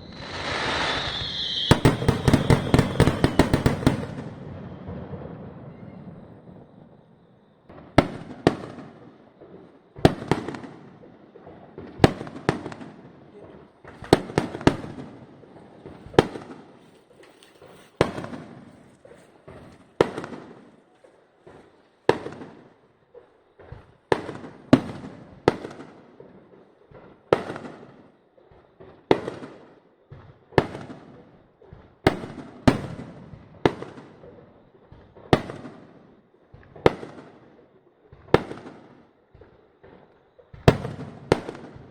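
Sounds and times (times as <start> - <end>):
fireworks shells bursting: 0.0 - 6.2.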